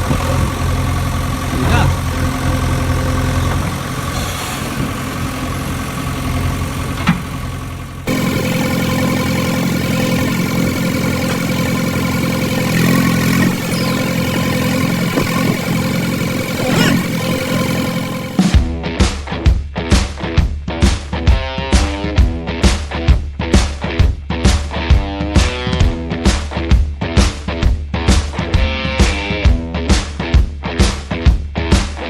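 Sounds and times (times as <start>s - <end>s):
engine drone: 0.0s - 18.6s
vehicle engine idling: 0.0s - 18.6s.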